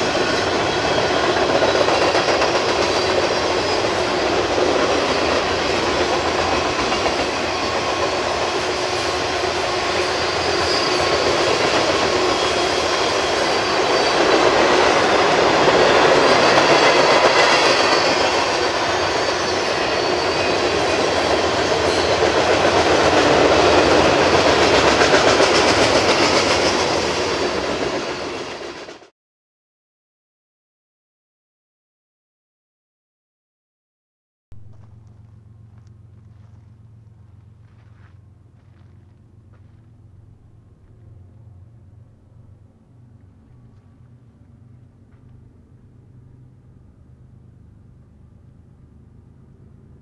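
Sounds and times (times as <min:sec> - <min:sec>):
freight cars rolling on rails: 0:00.0 - 0:29.1.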